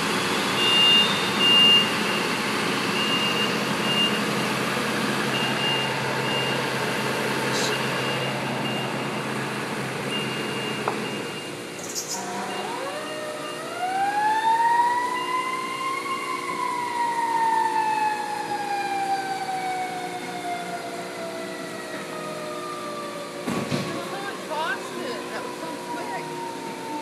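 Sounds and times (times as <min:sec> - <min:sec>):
truck engine running: 0:00.0 - 0:13.1
mechanical siren wailing: 0:05.2 - 0:09.2, 0:10.1 - 0:27.0.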